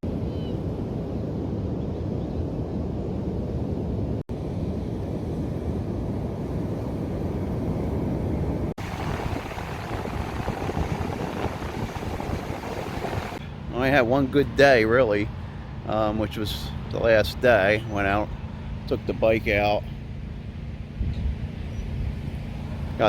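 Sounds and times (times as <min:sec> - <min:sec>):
strong wind buffeting microphone: 0:00.0 - 0:15.8.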